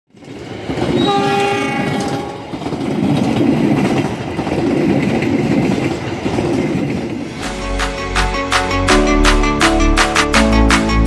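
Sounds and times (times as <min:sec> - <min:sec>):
train coaches rolling on rails: 0:00.1 - 0:08.7
locomotive horn: 0:01.0 - 0:02.5.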